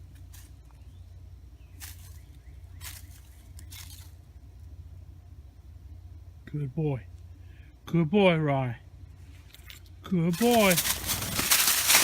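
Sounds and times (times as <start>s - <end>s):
steady low rumble: 0.0s - 12.0s
rustling through dry leaves: 1.7s - 4.2s, 10.3s - 12.0s.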